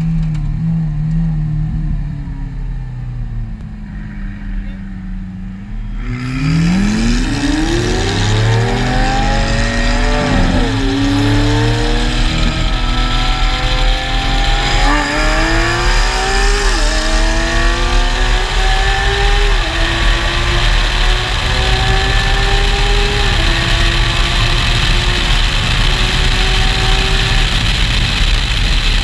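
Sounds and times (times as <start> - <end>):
sports cars accelerating: 2.9 - 28.8
wind rush: 5.8 - 29.0.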